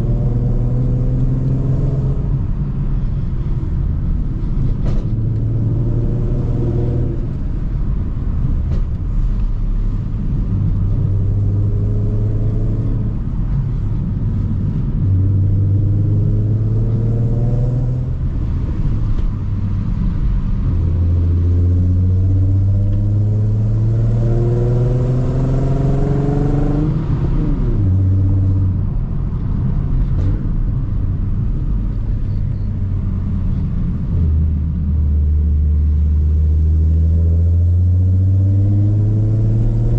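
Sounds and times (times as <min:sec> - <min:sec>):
car engine revving through gears: 0:00.0 - 0:02.5, 0:04.8 - 0:07.4, 0:10.7 - 0:13.3, 0:15.0 - 0:18.2, 0:21.0 - 0:28.7, 0:36.7 - 0:39.9.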